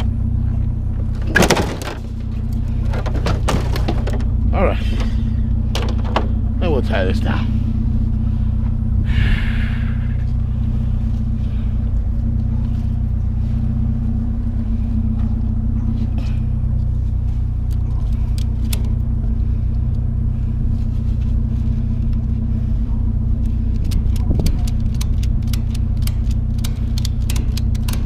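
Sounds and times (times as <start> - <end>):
pickup truck engine idling: 0.0 - 28.0
sharp clicks: 23.4 - 28.0.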